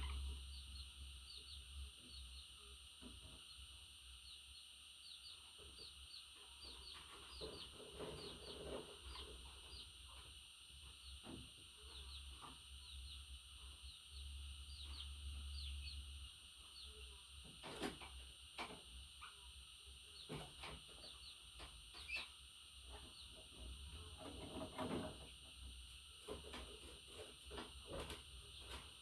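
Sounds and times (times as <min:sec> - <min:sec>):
steady high hiss: 0:00.0 - 0:07.6, 0:09.0 - 0:24.2
budgerigars chirping: 0:14.2 - 0:16.0, 0:21.0 - 0:22.3.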